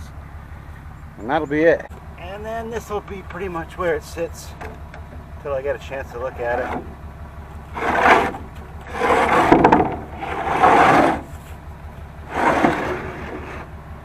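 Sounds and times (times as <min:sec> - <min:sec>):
metal box scraping into slot: 0:07.7 - 0:11.5, 0:12.2 - 0:13.7.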